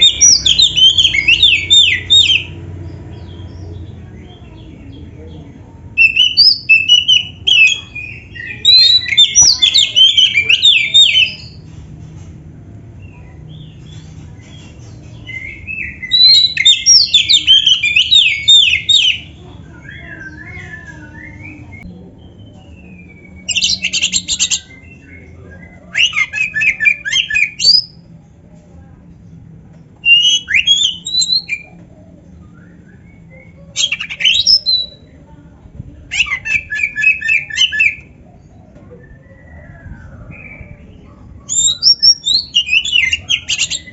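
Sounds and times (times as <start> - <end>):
songbird whistling and trilling: 0.0 - 2.6, 6.0 - 11.6, 15.2 - 28.0, 30.0 - 31.8, 32.4 - 35.1, 36.1 - 43.9.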